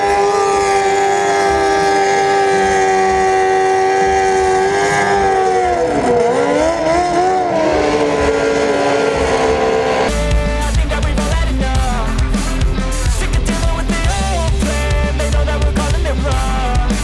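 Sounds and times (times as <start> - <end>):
motorcycle engine running: 10.1 - 17.0.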